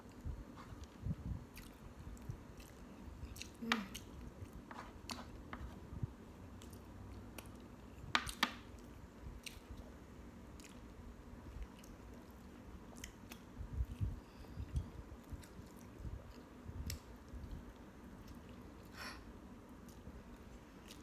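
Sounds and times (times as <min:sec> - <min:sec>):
person chewing: 0:00.1 - 0:05.8, 0:10.6 - 0:10.9, 0:11.5 - 0:14.1, 0:19.8 - 0:21.0.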